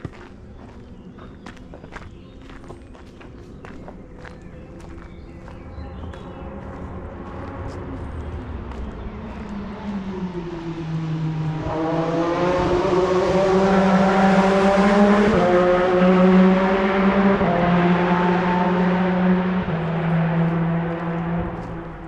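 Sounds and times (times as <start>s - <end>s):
race car engine accelerating: 5.1s - 22.0s.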